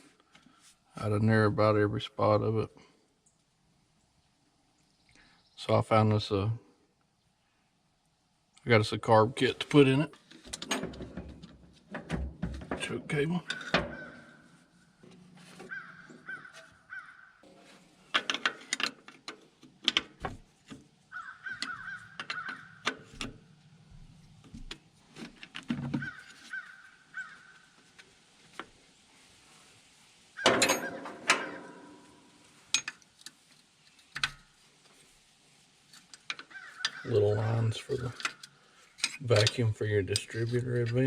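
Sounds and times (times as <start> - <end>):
tool clatter: 10.3 - 14.4, 30.4 - 33.0
crows cawing: 15.7 - 17.4, 21.1 - 23.0, 26.0 - 27.7, 36.4 - 37.1
hand tools clinking: 30.4 - 33.4, 38.0 - 40.6.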